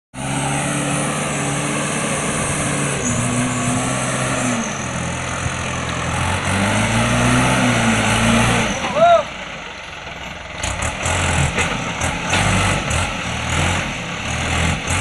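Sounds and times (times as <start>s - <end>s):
truck engine running: 0.2s - 15.0s.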